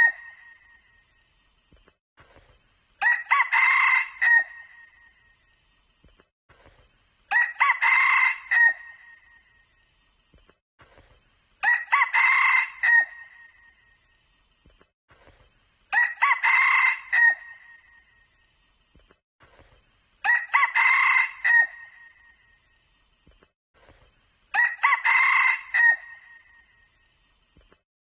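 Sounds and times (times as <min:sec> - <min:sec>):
rooster crowing: 0:03.0 - 0:04.7, 0:07.3 - 0:09.0, 0:11.6 - 0:13.3, 0:15.9 - 0:17.7, 0:20.2 - 0:22.2, 0:24.6 - 0:26.5.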